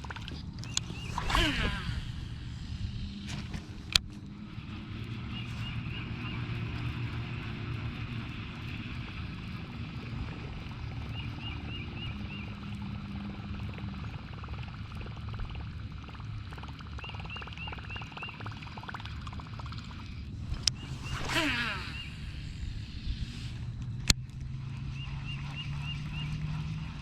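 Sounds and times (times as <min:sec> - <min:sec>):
loud falling whir: 0:00.6 - 0:07.2, 0:20.3 - 0:27.0
electric motor humming: 0:00.6 - 0:09.3, 0:20.3 - 0:24.9.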